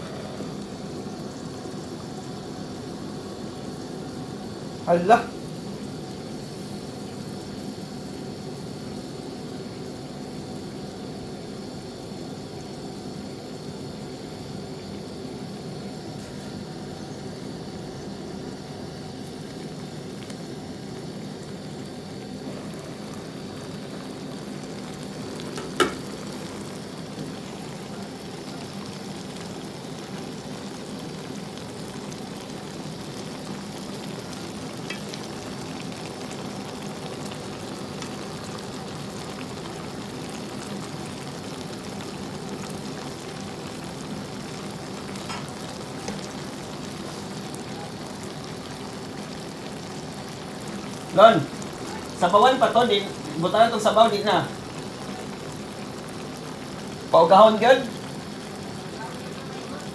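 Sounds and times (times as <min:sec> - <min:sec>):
shrimp sizzling in a wok: 0:00.0 - 0:59.9
glass lid clanking: 0:25.6 - 0:26.0.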